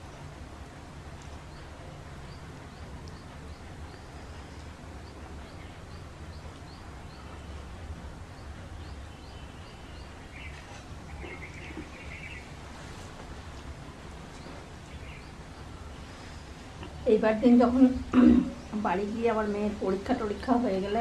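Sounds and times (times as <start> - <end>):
steady low hum: 0.0 - 21.0
bird chirping: 1.2 - 12.9, 14.2 - 17.8.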